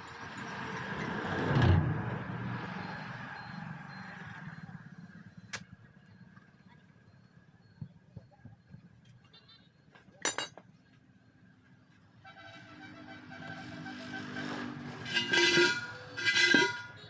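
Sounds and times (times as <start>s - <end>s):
motor vehicle passing by: 0.0s - 5.5s, 13.2s - 15.2s.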